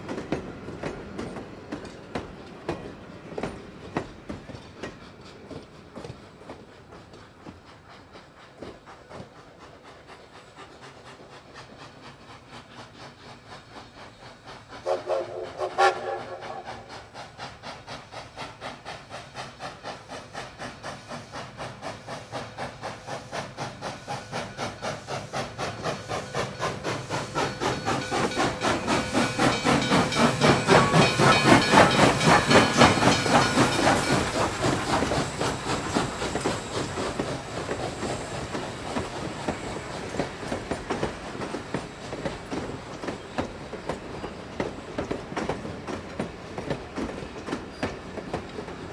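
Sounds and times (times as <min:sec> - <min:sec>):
steam locomotive chuffing: 0:00.0 - 0:48.9
steam locomotive whistle: 0:14.8 - 0:17.0.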